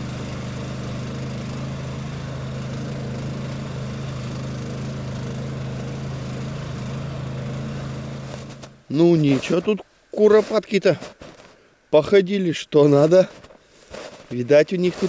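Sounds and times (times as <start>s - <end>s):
small engine droning: 0.0s - 8.9s.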